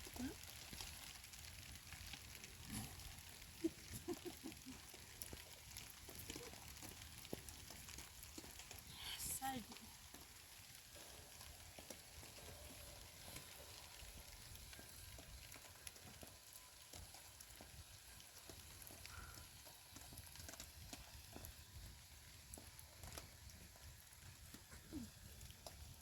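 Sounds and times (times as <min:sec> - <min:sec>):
faint crackling hiss: 0:00.0 - 0:26.0.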